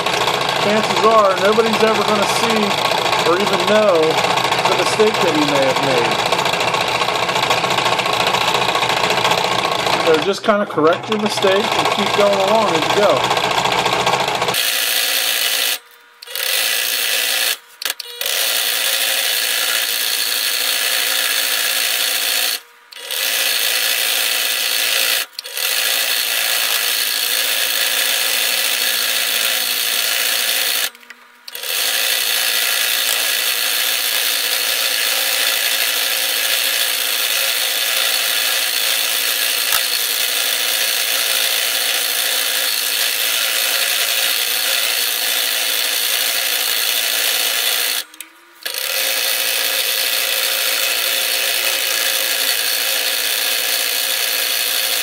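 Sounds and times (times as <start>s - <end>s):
scroll saw cutting wood: 0.0s - 55.0s.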